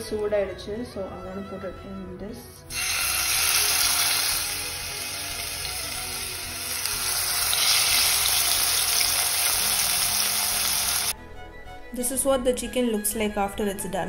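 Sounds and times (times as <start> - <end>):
chicken sizzling in frying pan: 2.7 - 11.1.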